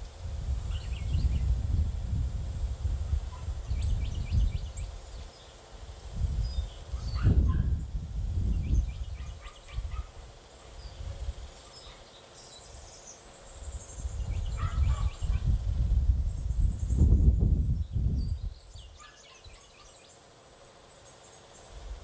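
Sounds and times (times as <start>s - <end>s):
wind buffeting microphone: 0.0s - 11.5s, 13.6s - 19.0s
small birds chirping: 0.6s - 1.6s, 3.3s - 15.6s, 16.2s - 21.9s
bird trill: 18.4s - 20.2s.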